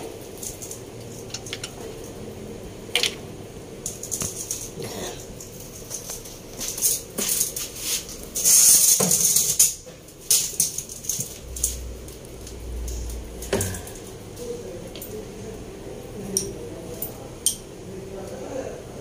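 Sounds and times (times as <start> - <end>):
metal tools clinking and rattling: 0.0 - 2.2, 3.8 - 15.2.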